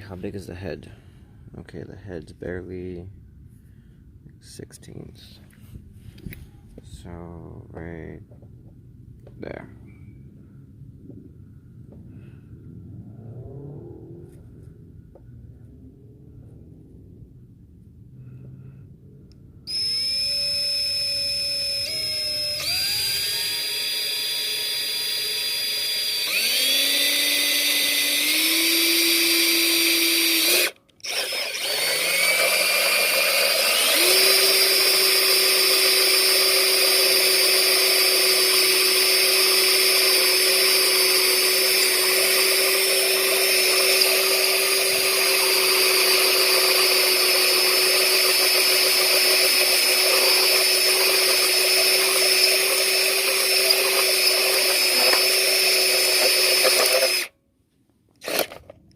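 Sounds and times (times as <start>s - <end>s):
electric drill motor whine: 19.7s - 57.3s, 58.2s - 58.7s.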